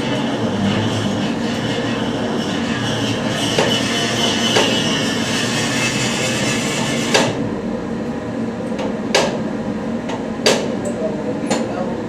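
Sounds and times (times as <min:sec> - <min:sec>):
dense mechanical noise: 0:00.0 - 0:12.0.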